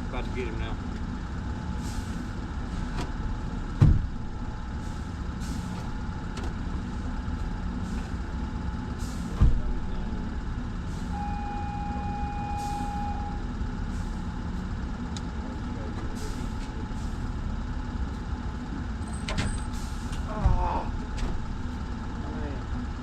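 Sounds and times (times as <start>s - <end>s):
low mechanical drone: 0.0s - 23.0s
high beep-like tone: 11.2s - 13.4s.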